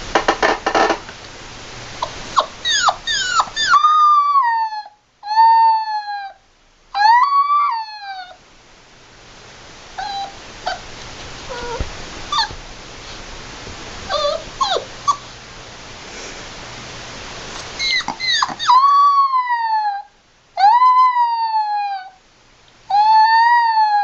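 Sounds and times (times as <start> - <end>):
background hiss: 0.0 - 24.0
puppy howling: 2.0 - 6.4, 7.0 - 8.4, 10.0 - 10.9, 11.5 - 12.6, 14.1 - 15.2, 17.8 - 22.2, 22.9 - 24.0
puppy yipping and whimpering: 2.0 - 6.4, 7.0 - 8.4, 10.0 - 10.9, 11.5 - 12.6, 14.1 - 15.3, 17.6 - 22.2, 22.9 - 24.0.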